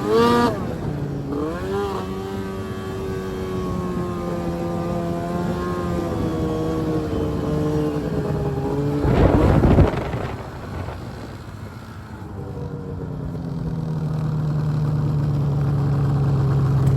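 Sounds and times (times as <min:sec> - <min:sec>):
snowmobile engine running: 0:00.0 - 0:16.9
loud rushing burst: 0:09.0 - 0:12.1.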